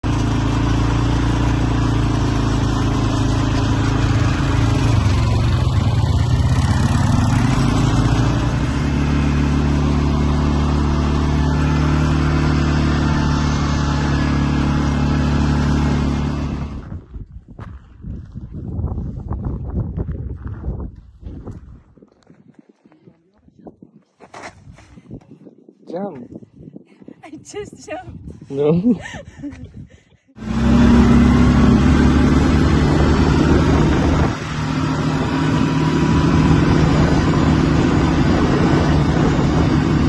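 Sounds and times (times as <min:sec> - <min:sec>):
quad bike engine running: 0:00.0 - 0:17.1, 0:30.4 - 0:40.0.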